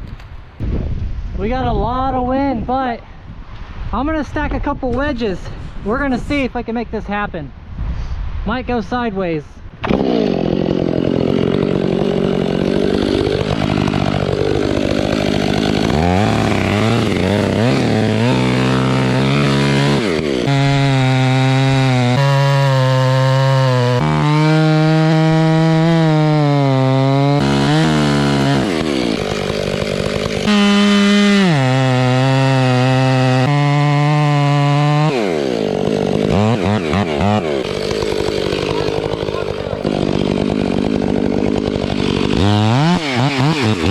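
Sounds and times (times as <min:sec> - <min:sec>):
chainsaw cutting tree trunk: 0:09.8 - 0:43.9.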